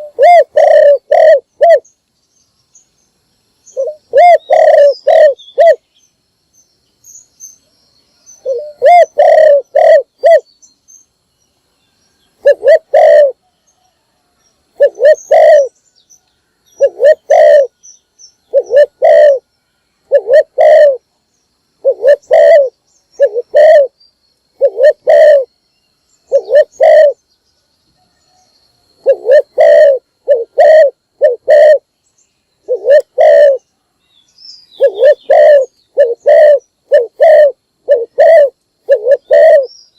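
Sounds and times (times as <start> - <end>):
dove cooing: 0.0 - 1.9, 3.7 - 5.8, 8.4 - 10.5, 12.4 - 13.9, 14.8 - 15.8, 16.8 - 17.8, 18.5 - 19.5, 20.1 - 21.0, 21.8 - 24.0, 24.6 - 25.5, 26.3 - 27.2, 29.0 - 31.9, 32.6 - 33.7, 34.8 - 39.7.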